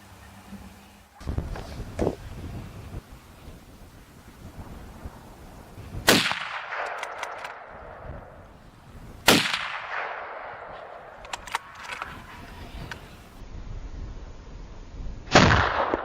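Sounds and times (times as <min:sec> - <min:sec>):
gunshots with echo: 0:06.1 - 0:07.7, 0:09.3 - 0:10.7.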